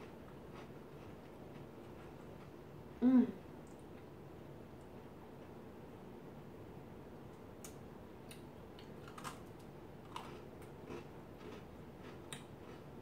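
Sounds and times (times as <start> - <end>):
cookie crunching while chewed: 0.0 - 2.5, 7.6 - 13.0.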